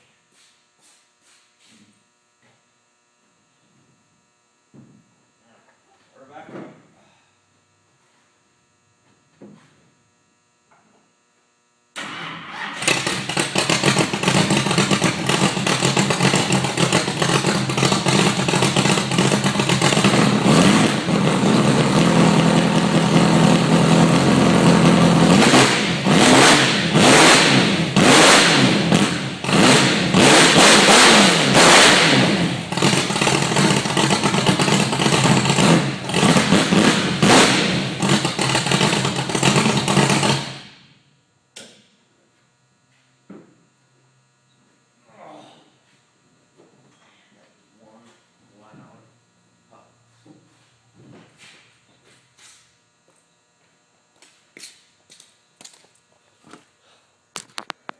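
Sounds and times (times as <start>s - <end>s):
racing engine idling and revving: 12.8s - 40.8s.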